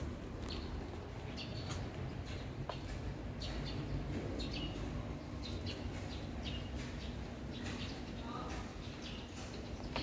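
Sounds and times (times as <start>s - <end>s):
bird chirping: 0.4s - 2.6s, 3.3s - 10.0s.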